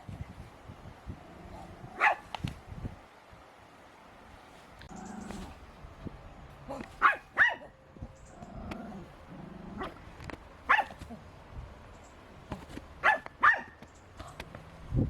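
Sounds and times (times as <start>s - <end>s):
dog barking: 1.5s - 2.3s, 6.7s - 7.8s, 10.7s - 11.2s, 13.0s - 13.8s.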